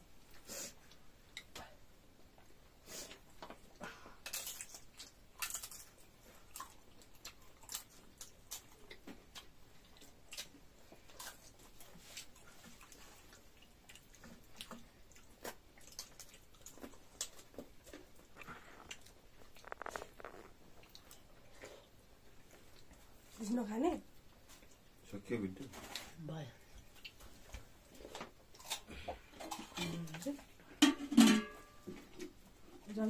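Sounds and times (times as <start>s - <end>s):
wet chewing clicks and smacks: 4.2s - 23.1s, 26.8s - 29.6s.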